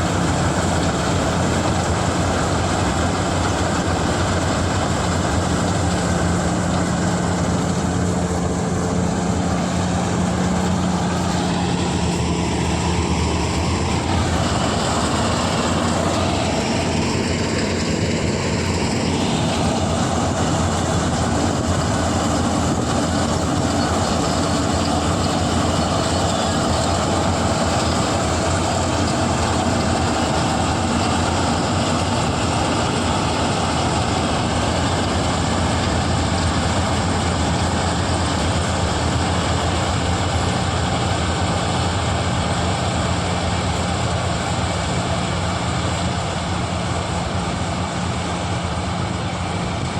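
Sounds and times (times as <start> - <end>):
combine harvester running: 0.0 - 49.9.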